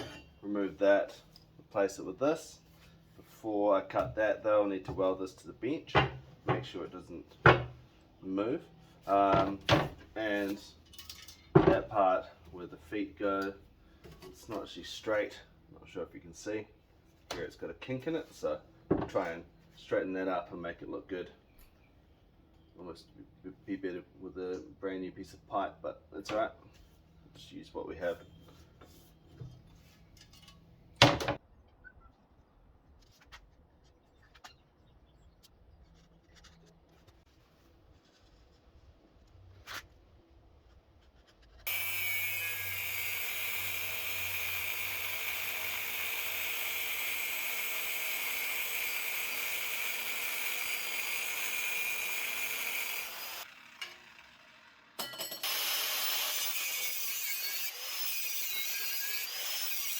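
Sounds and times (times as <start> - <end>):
power tool grinding metal: 41.7 - 59.9.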